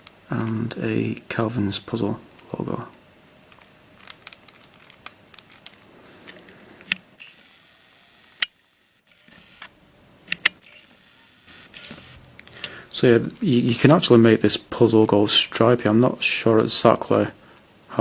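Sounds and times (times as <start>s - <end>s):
plastic puzzle clicking and rattling: 3.6s - 7.0s.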